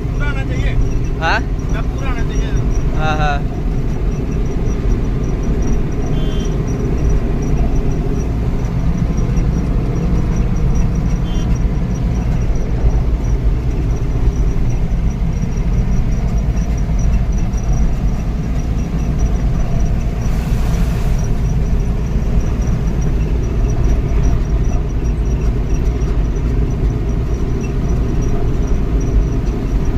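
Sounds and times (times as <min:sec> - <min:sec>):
road noise: 0:00.0 - 0:29.9
truck engine rumbling: 0:00.0 - 0:29.9
brief hiss: 0:20.3 - 0:21.4.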